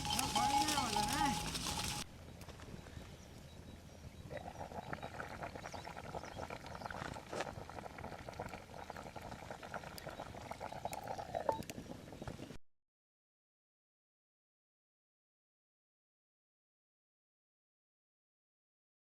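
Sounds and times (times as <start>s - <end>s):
beans bubbling in a pot: 0.0s - 2.0s, 4.2s - 12.4s.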